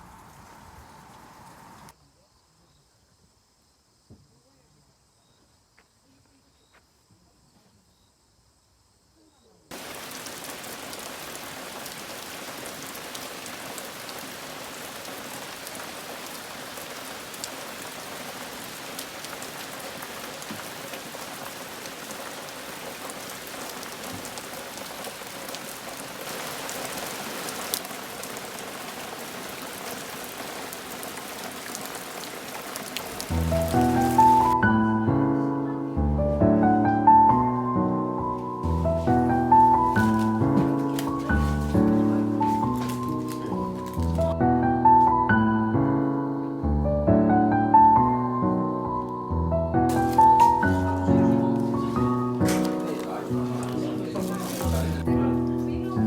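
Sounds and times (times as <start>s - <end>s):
rain pattering on leaves: 0.0s - 2.0s, 9.7s - 34.6s, 38.6s - 44.4s, 49.9s - 56.0s.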